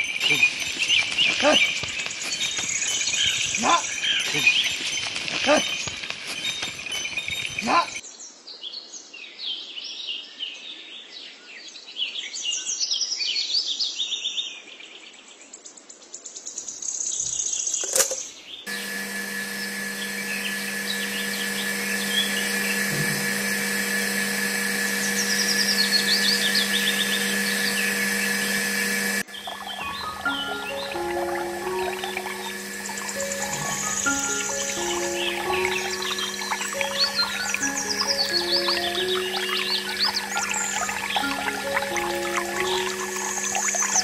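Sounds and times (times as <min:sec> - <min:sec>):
birds chirping: 0:00.0 - 0:08.0, 0:18.2 - 0:44.0
small water pump humming: 0:00.0 - 0:08.0, 0:18.7 - 0:44.0.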